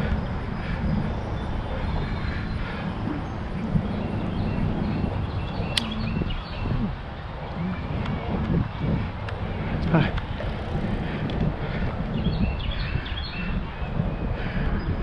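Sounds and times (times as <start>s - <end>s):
faint birds chirping: 0.0s - 15.0s
wind rumbling on microphone: 0.0s - 15.0s
sharp click: 5.7s - 6.0s.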